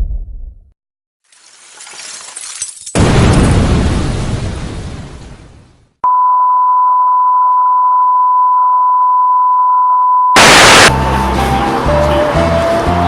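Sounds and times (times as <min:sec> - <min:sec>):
electronic beep tone: 0:06.1 - 0:10.9
burst of loud static: 0:10.4 - 0:10.9.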